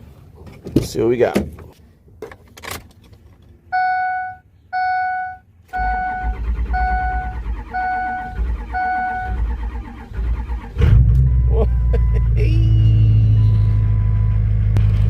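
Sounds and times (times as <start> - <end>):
dashboard warning chime beeping: 3.7 - 10.0, 11.3 - 14.4
diesel engine cranking: 5.6 - 15.0.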